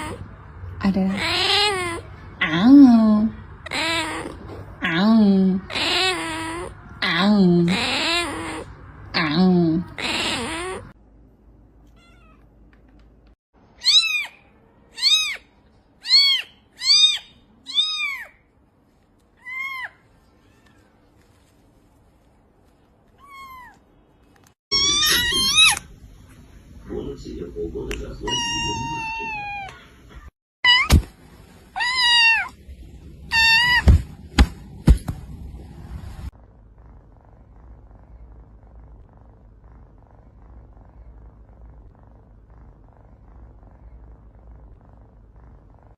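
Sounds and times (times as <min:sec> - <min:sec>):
cat meowing: 0:01.1 - 0:02.1, 0:03.6 - 0:04.4, 0:05.7 - 0:06.7, 0:07.7 - 0:08.7, 0:09.9 - 0:10.9, 0:11.9 - 0:12.4, 0:13.8 - 0:18.4, 0:19.4 - 0:20.9, 0:23.2 - 0:23.8, 0:24.7 - 0:25.8, 0:28.3 - 0:29.8, 0:31.8 - 0:32.6, 0:33.3 - 0:34.0.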